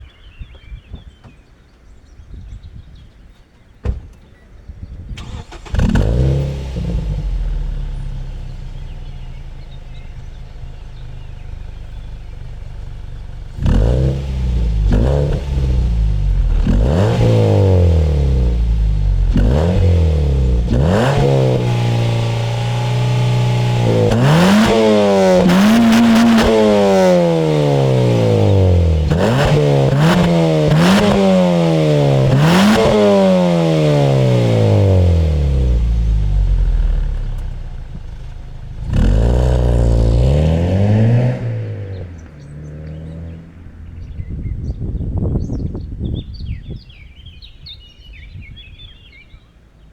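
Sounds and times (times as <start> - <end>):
car engine starting and revving: 5.2 - 45.8.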